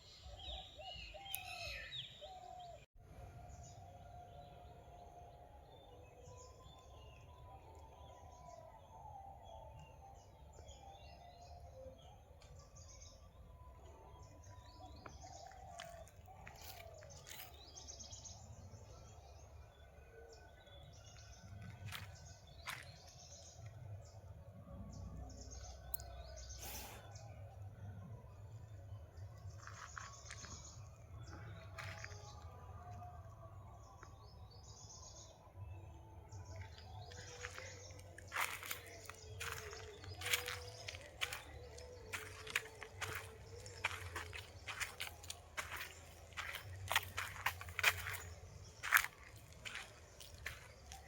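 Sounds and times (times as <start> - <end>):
whistled bird notes: 0.0 - 23.4, 28.7 - 51.0
birds chirping: 3.5 - 51.0.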